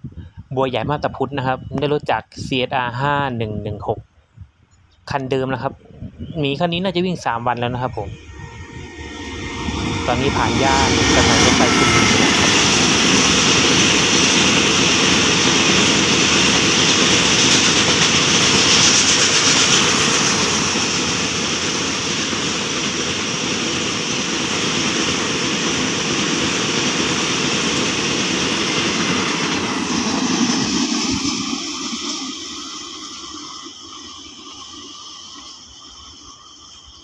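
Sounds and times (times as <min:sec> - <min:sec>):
freight train wheels rumbling: 0:07.2 - 0:36.3.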